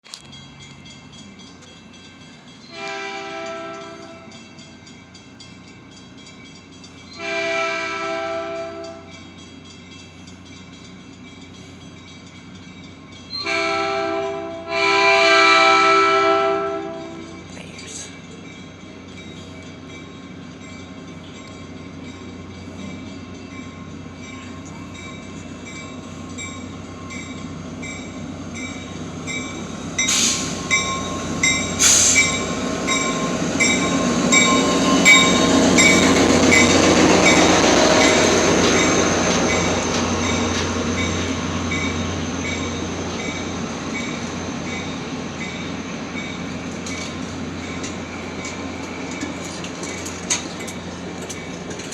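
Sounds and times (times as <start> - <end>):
train rumbling on rails: 0.0 - 51.9
high wheel squeal: 28.9 - 51.9.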